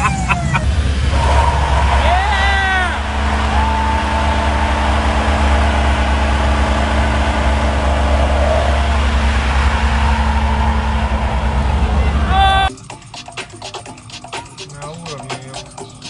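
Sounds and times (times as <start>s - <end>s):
car engine rumble: 0.0s - 12.7s
road noise: 0.0s - 13.2s.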